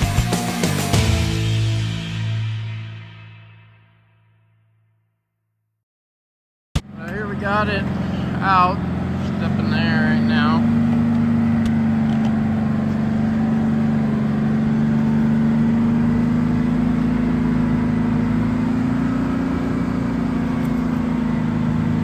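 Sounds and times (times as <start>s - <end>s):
diesel engine running: 6.8s - 22.0s.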